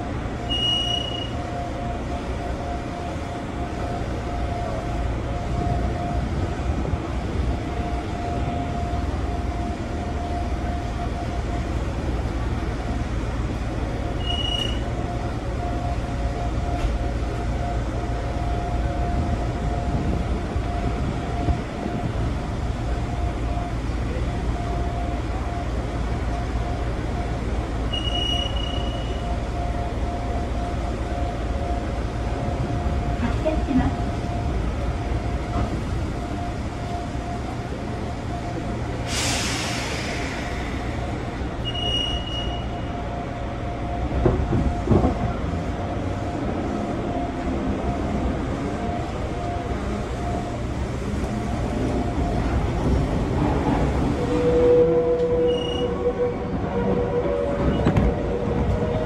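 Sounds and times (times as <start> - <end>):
mid-pitched train hum: 0.0 - 59.0
train wheels rumbling on track: 0.0 - 59.0
short high beep: 0.4 - 1.4, 14.2 - 14.9, 27.9 - 29.3, 41.6 - 43.0, 55.5 - 56.0.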